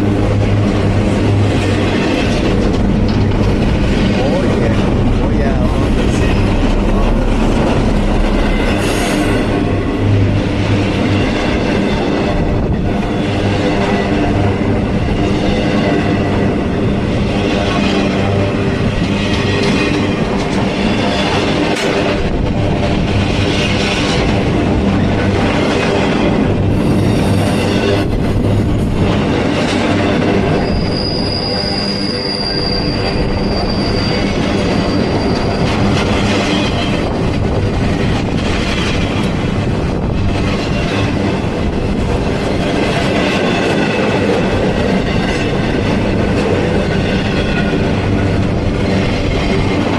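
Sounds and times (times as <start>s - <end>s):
freight train rumbling past: 0.0s - 49.9s
steel wheel squeal: 30.2s - 37.1s.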